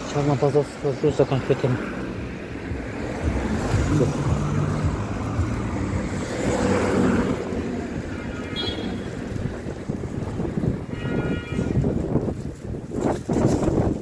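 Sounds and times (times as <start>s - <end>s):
car passing: 0.0s - 10.9s
road traffic: 0.0s - 14.0s
wind buffeting microphone: 9.0s - 14.0s.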